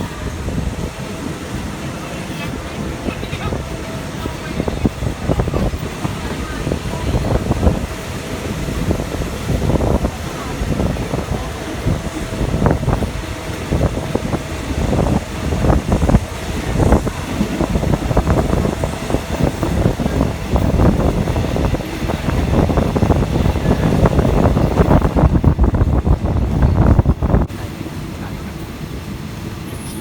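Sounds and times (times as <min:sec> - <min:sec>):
wind rushing: 0:00.0 - 0:27.6
train rumbling: 0:00.0 - 0:30.0.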